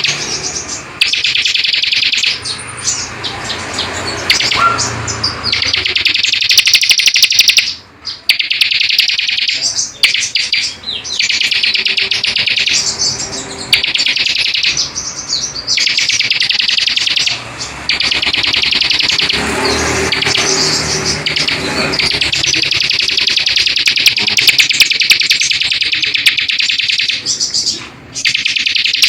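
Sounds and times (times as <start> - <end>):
songbird trilling chatter: 0.0 - 29.0.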